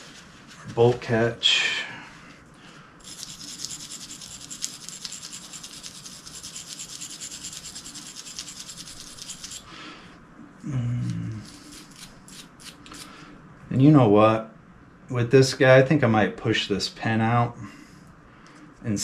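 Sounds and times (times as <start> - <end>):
stiff brush scrubbing metal: 3.1 - 9.6.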